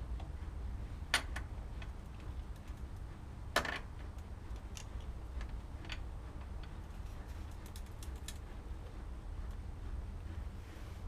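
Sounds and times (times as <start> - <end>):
steady low rumble: 0.0 - 11.0
metal parts and tools clicking: 4.5 - 8.5.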